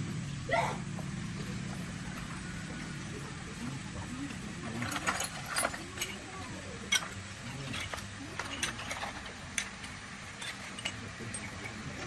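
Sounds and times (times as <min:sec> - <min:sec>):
low steady hum: 0:00.0 - 0:12.0
clinks of hand tools: 0:04.6 - 0:12.0.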